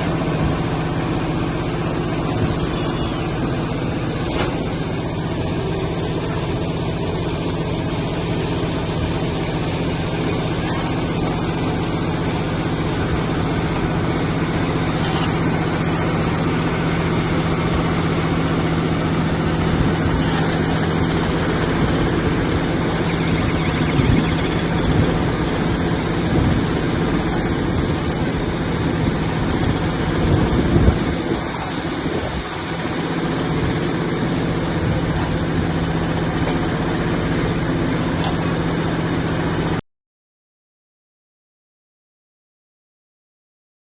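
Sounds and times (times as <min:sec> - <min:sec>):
baler machine humming: 0:00.0 - 0:39.8.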